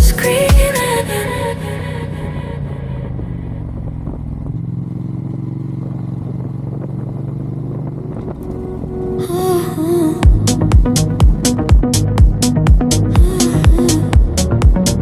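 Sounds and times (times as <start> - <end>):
house beat with heavy kick drums: 0.0 - 0.9, 10.2 - 15.0
motorcycle engine running: 1.8 - 9.2, 10.2 - 15.0
wavering synth line: 7.9 - 15.0.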